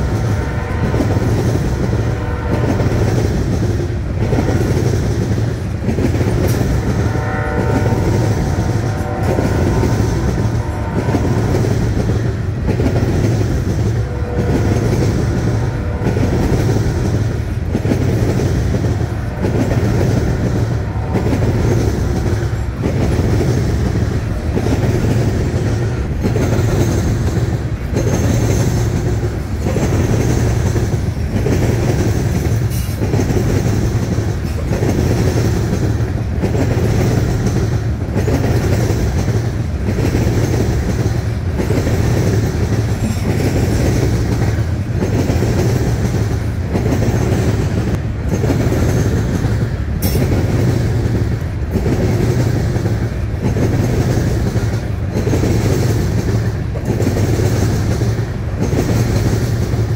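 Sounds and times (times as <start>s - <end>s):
freight train wheels rumbling on rails: 0.0s - 59.9s
wheels clickety-clack: 0.0s - 59.9s.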